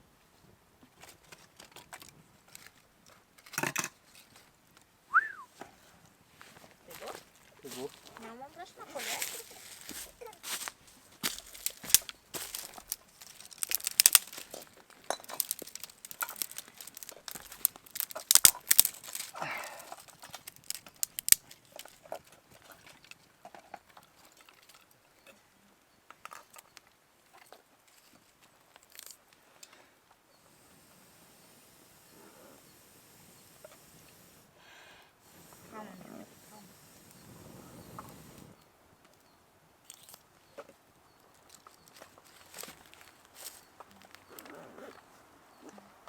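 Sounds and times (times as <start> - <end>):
crinkling and rustling handling: 0.8 - 4.9, 5.5 - 25.3, 26.1 - 29.8, 39.8 - 46.0.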